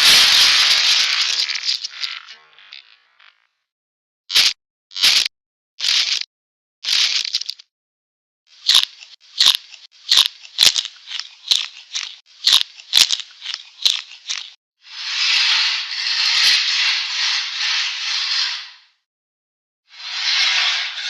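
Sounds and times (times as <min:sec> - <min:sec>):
cartoon snipping strokes: 0:04.3 - 0:06.2.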